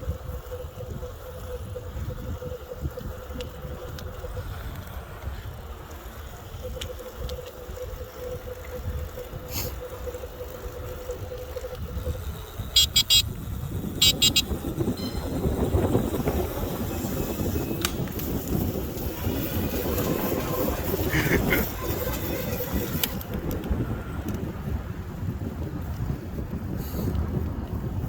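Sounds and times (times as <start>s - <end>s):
electric scooter motor whine: 0.0s - 28.0s
wind rumble on microphone: 0.0s - 28.0s
rapid high horn beeps: 12.7s - 13.4s, 14.0s - 15.7s.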